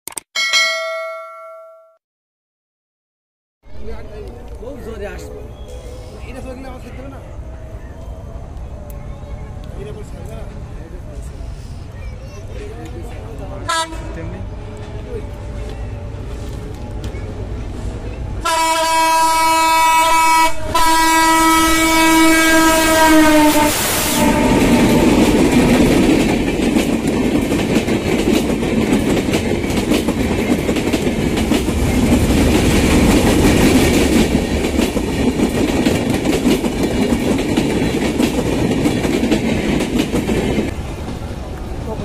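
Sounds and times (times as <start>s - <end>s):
locomotive horn blasts: 13.7s - 14.2s, 18.4s - 25.5s
train wheels clickety-clack: 22.0s - 41.7s.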